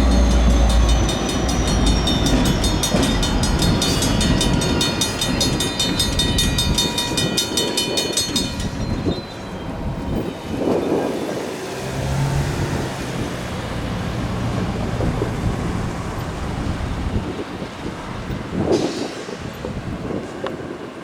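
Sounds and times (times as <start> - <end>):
wind buffeting microphone: 0.0 - 21.0
rumbling vehicle engine hum: 9.8 - 18.7.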